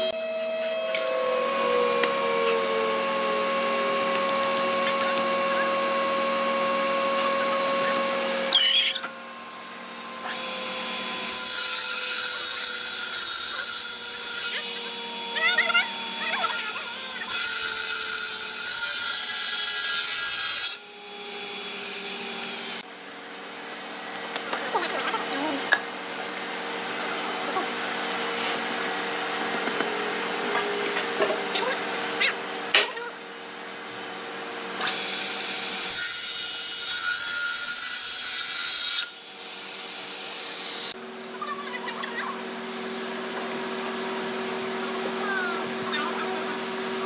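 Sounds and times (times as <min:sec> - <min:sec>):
power tool sanding wood: 0:00.0 - 0:08.5, 0:09.6 - 0:31.9
low machine hum: 0:00.0 - 0:11.4
faint motor whine: 0:00.0 - 0:17.3.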